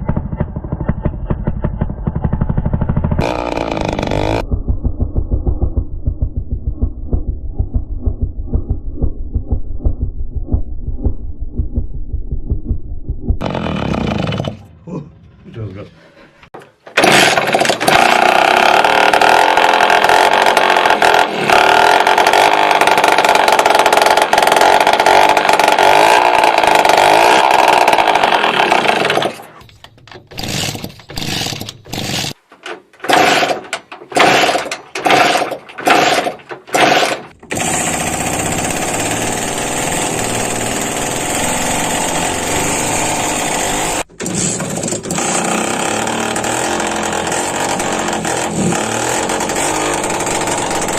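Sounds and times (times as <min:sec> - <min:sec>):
engine running with loud whine: 0:00.0 - 0:09.3, 0:37.5 - 0:50.9.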